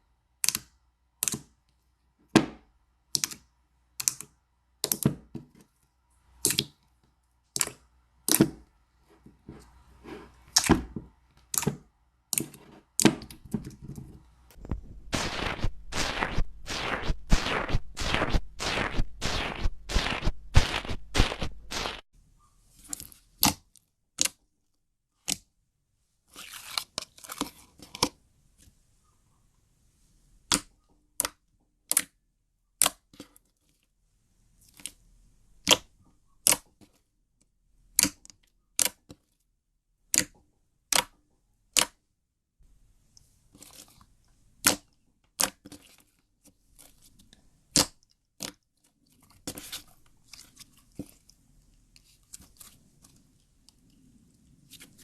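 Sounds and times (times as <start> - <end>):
soft slime squishing: 43.0 - 55.0.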